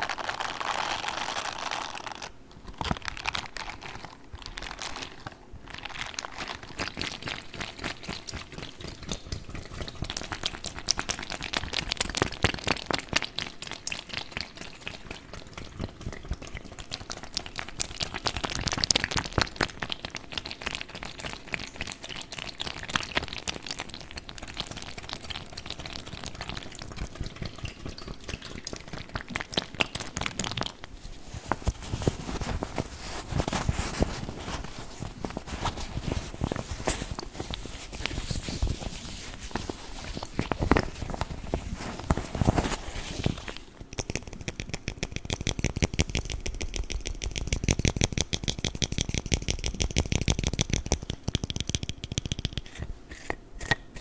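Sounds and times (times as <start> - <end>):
water sloshing in plastic bag: 26.4 - 43.9
plastic bag squelches and taps: 27.1 - 52.8.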